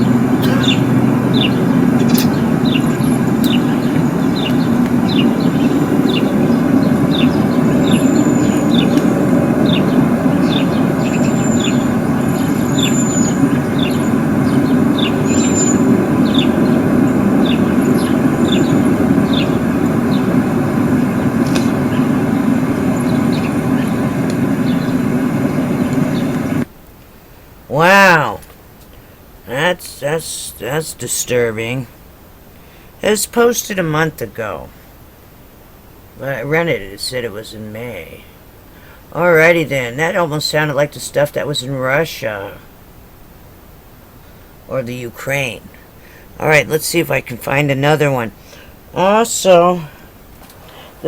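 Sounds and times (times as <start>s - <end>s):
bird chirping: 0.0s - 26.6s
loud low drone: 0.0s - 26.7s.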